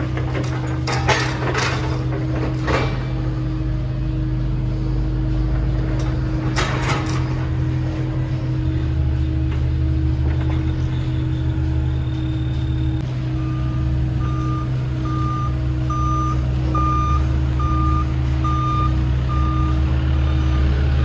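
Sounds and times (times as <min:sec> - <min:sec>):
truck engine idling: 0:00.0 - 0:21.0
backup alarm beeping: 0:11.7 - 0:20.8.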